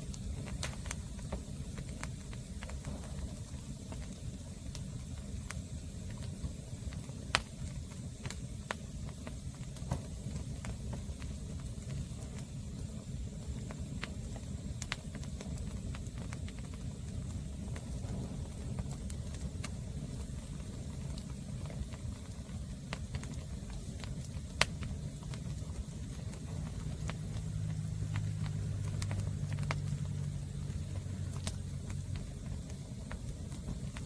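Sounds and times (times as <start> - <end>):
firewood crackling and popping: 0.0 - 34.0
low engine hum: 22.8 - 34.0.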